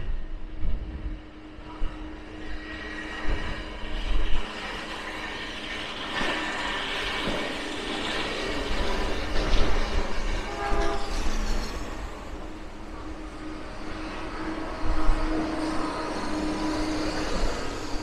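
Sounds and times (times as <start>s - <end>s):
diesel train rumbling: 0.0s - 18.0s.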